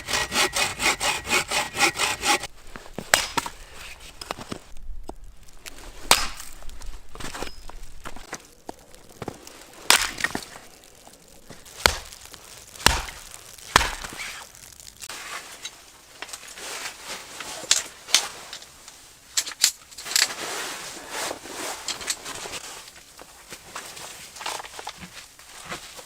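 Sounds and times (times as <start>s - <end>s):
sharp chopping strikes: 0.0s - 2.5s, 12.8s - 14.1s
brittle cracking and crunching: 8.1s - 15.1s.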